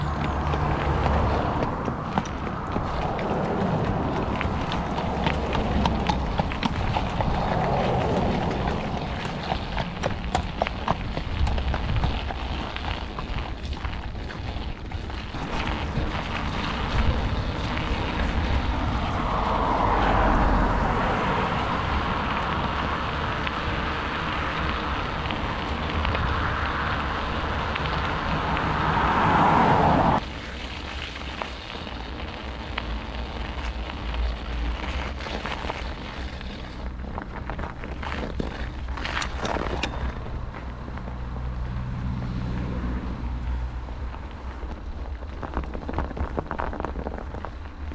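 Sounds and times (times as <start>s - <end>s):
wind rushing over microphone: 0.0s - 30.4s
bicycle tyres rolling: 0.0s - 47.9s.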